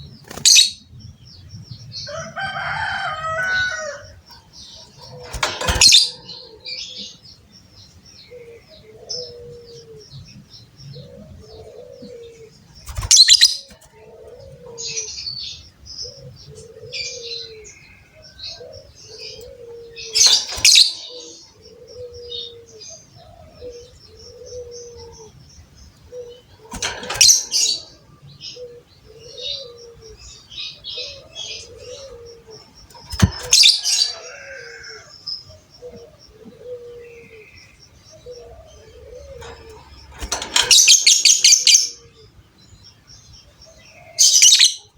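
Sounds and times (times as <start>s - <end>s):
dove cooing: 2.1s - 7.2s, 8.3s - 25.4s, 26.0s - 42.4s.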